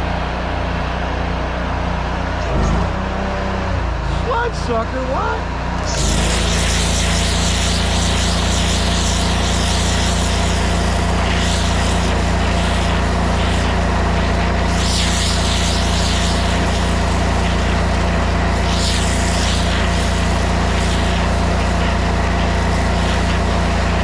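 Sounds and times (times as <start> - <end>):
pressure washer engine drone: 0.0 - 24.0
high-pressure water jet hissing: 5.8 - 24.0.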